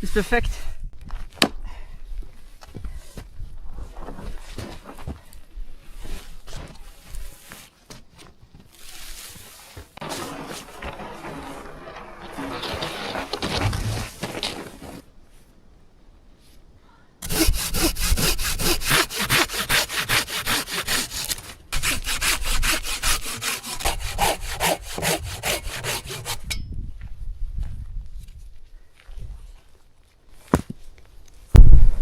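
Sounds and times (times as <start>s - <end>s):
hand saw cutting wood: 10.0s - 15.0s, 17.2s - 26.6s.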